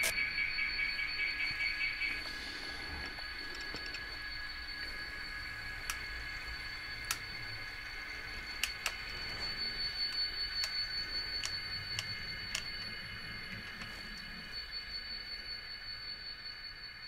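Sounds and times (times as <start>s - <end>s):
model train motor whine: 0.0s - 17.0s.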